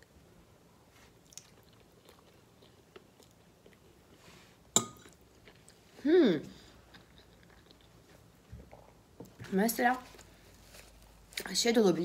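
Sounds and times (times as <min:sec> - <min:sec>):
chewing spaghetti: 0:01.1 - 0:04.2, 0:06.8 - 0:09.0.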